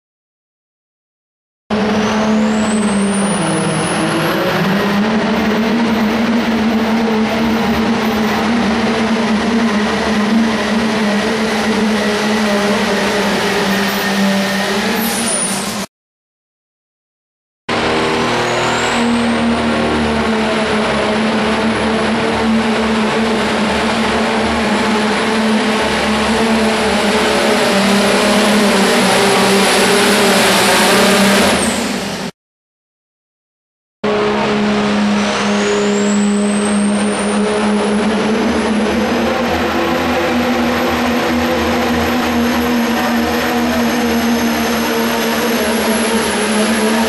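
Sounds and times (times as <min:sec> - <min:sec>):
truck engine at full throttle: 0:01.7 - 0:15.9, 0:17.7 - 0:32.3, 0:34.0 - 0:47.0
turbo whistle: 0:18.3 - 0:19.5, 0:35.2 - 0:38.2.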